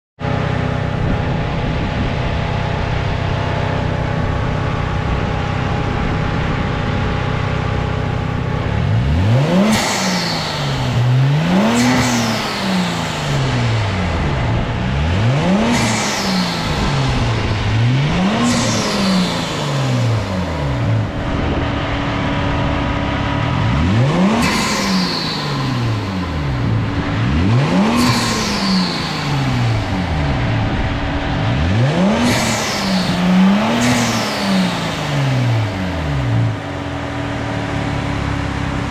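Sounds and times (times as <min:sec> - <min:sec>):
turbocharged car engine revving: 0:00.2 - 0:38.9
high turbo whistle: 0:24.1 - 0:31.0.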